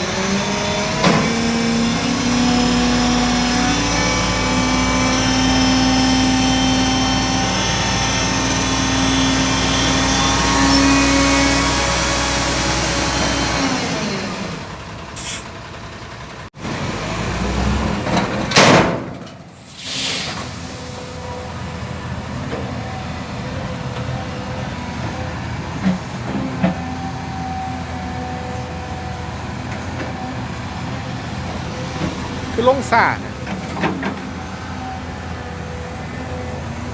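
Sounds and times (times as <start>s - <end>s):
dump truck diesel engine running: 0.0s - 36.9s
short loud hiss: 15.2s - 15.5s, 19.6s - 20.7s.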